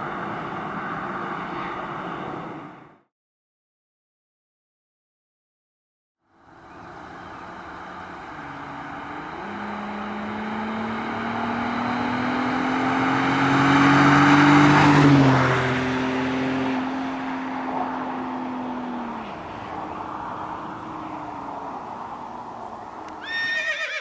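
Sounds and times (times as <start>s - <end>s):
car exhaust accelerating: 6.6s - 23.2s.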